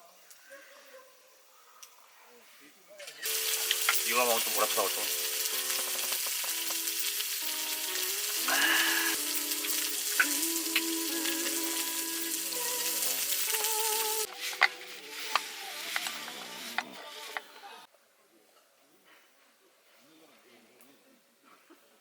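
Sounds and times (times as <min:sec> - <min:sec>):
faint background music: 0:01.5 - 0:19.0
shellfish sizzling on a grill: 0:03.1 - 0:17.4.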